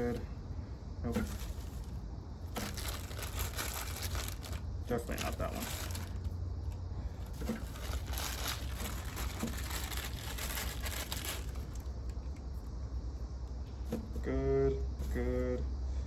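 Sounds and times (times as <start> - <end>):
steady low hum: 0.0 - 16.0
bag of potatoes rustling: 1.1 - 6.4, 7.2 - 12.0.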